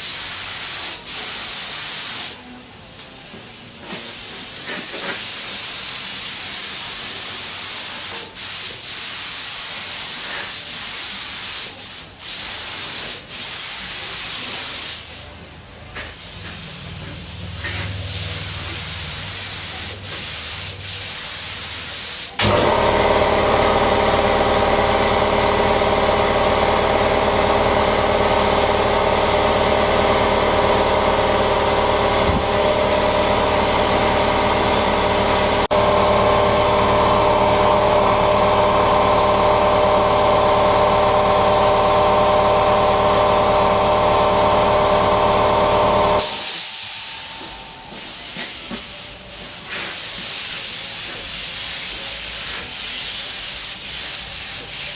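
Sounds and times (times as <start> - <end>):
spray painting air hiss: 0.0 - 2.6, 3.4 - 35.7, 36.9 - 54.9.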